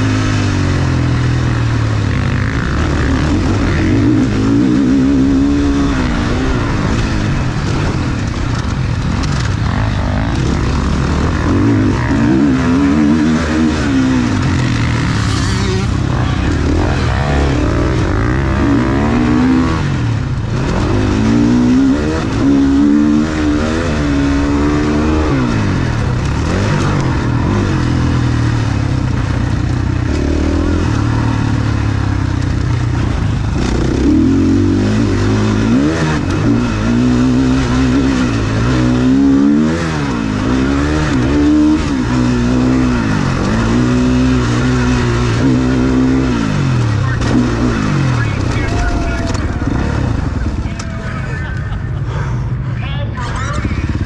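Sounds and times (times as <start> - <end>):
dirt bike engine revving: 0.0 - 52.0, 52.6 - 54.0.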